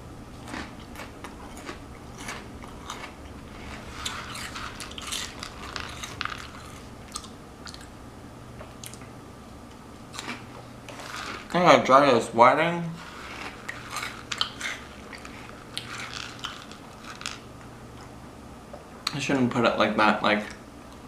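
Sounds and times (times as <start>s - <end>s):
person chewing crunchy food: 0.3s - 8.0s, 8.8s - 9.1s, 10.1s - 11.6s, 13.0s - 18.2s.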